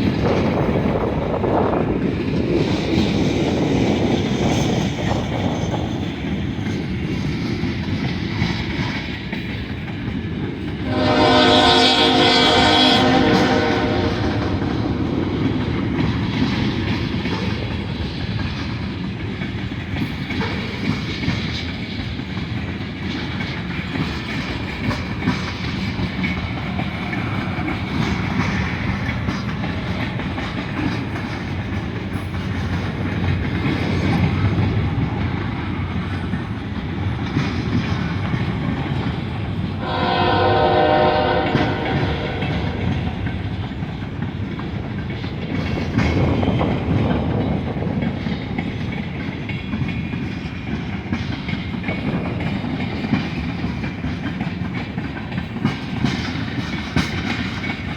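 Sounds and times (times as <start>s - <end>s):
freight train rolling past: 0.0s - 57.9s
locomotive air horn: 10.9s - 14.7s, 39.8s - 42.9s
wheel clatter over rail joints: 41.6s - 57.9s.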